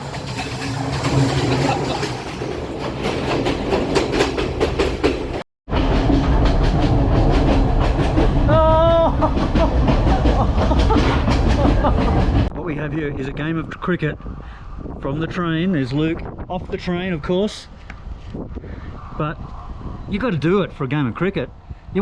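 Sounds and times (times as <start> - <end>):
train wheels clicking over rail joints: 0.0 - 12.5
train rumble: 0.0 - 22.0.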